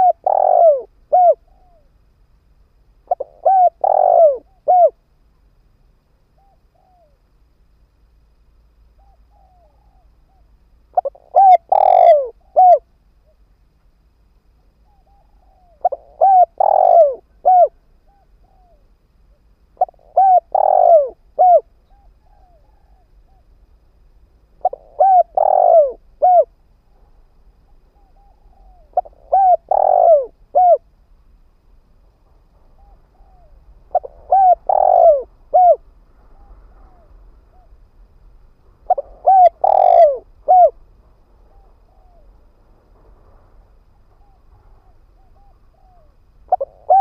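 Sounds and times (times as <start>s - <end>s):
dove cooing: 0.0s - 2.0s, 3.0s - 5.0s, 6.3s - 7.2s, 9.0s - 13.4s, 14.8s - 18.9s, 19.8s - 23.5s, 24.6s - 26.6s, 27.7s - 30.9s, 32.7s - 37.8s, 38.8s - 40.8s, 41.4s - 42.4s, 44.1s - 47.0s.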